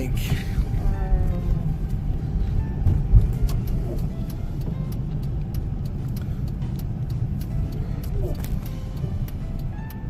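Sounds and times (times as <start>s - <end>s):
car engine and tyre rumble: 0.0s - 10.0s
faint light ticks: 1.2s - 10.0s.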